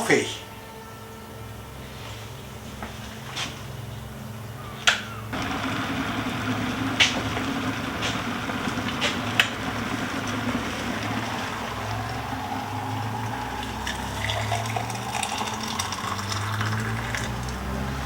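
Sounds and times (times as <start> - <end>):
tap water running: 5.4 - 18.0.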